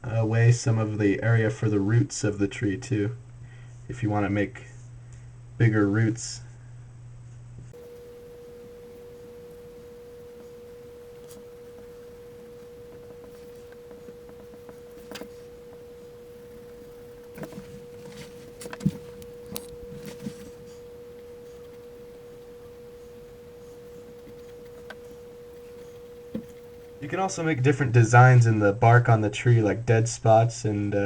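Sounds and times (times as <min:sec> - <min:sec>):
faint clicks and knocks: 0:07.8 - 0:27.9
steady tone: 0:07.8 - 0:28.1.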